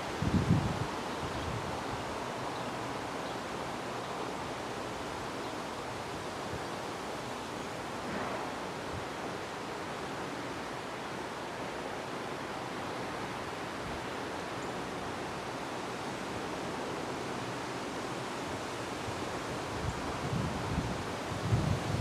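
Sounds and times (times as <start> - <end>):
wind blowing: 0.0 - 2.0, 19.5 - 22.0.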